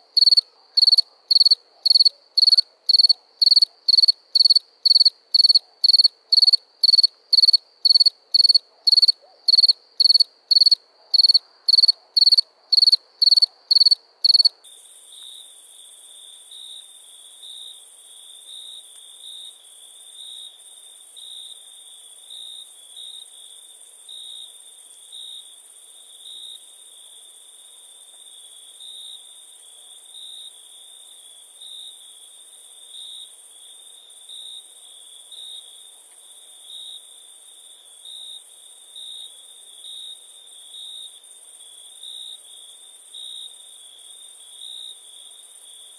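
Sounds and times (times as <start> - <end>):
cricket chirping: 0.0 - 45.9
crickets trilling: 0.2 - 23.5.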